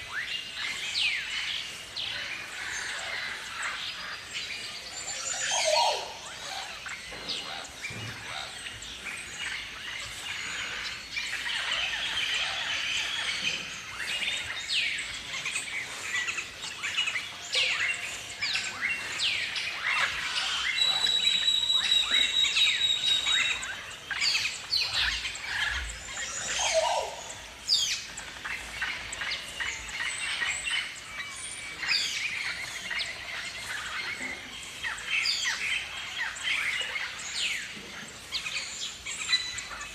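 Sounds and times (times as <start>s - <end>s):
flock of cockatoos calling: 0.0s - 39.9s.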